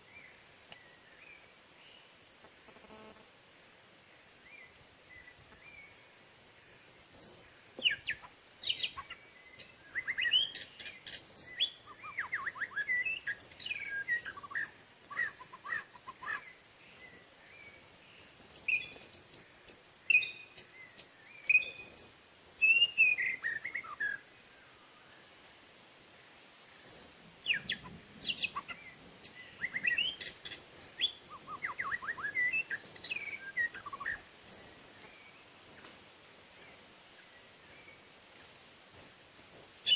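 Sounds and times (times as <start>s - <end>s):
high-pitched insect drone: 0.0s - 3.6s, 4.3s - 39.9s
bird singing whistled phrases: 22.6s - 24.2s, 29.5s - 34.2s.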